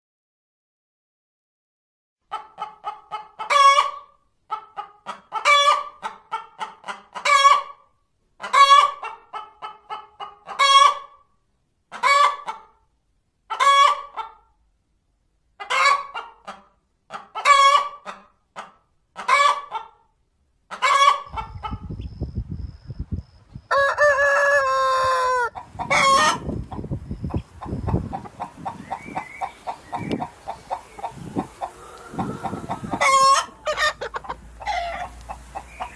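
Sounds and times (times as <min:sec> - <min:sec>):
rooster crowing: 0:23.7 - 0:26.9, 0:27.6 - 0:35.9
chickens calling: 0:23.7 - 0:35.9
hen cackling: 0:23.7 - 0:35.9.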